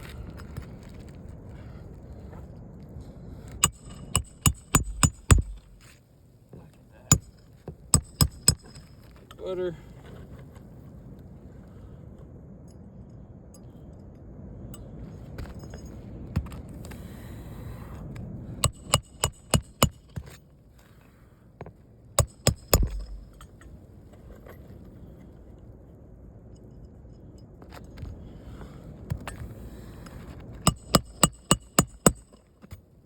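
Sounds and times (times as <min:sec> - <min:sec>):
hammer striking metal: 0:03.6 - 0:05.8, 0:07.1 - 0:07.4, 0:08.0 - 0:08.9, 0:18.6 - 0:20.2, 0:22.2 - 0:23.6, 0:30.7 - 0:32.4.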